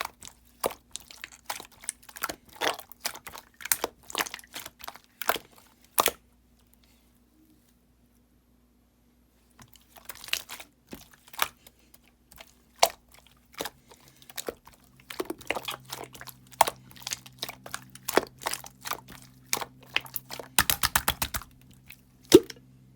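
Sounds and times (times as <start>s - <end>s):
slime popping and clicking: 20.1s - 21.5s.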